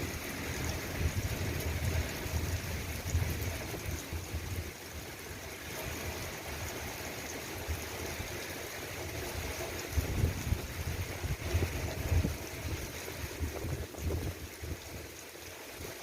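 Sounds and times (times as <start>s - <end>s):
rain falling: 0.0s - 16.0s
low gusty rumbles: 9.8s - 15.0s.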